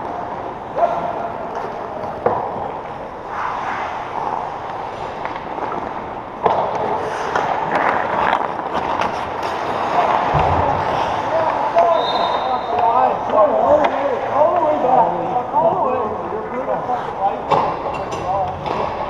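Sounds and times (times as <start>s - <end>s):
skates scraping on ice: 1.5s - 14.8s.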